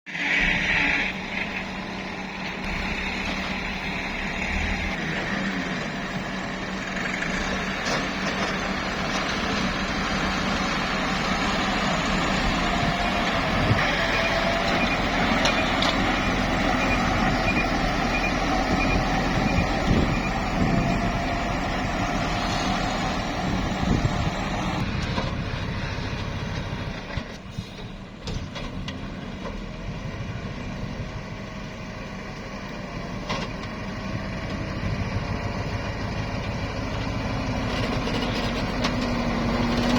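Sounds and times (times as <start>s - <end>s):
truck engine running: 0.1s - 39.9s
reversing beeper: 13.5s - 23.6s.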